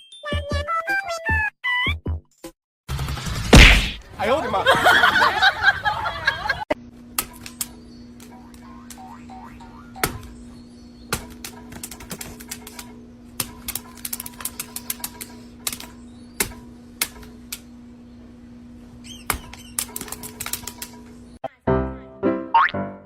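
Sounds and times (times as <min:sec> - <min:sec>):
steady low hum: 0:03.5 - 0:21.4.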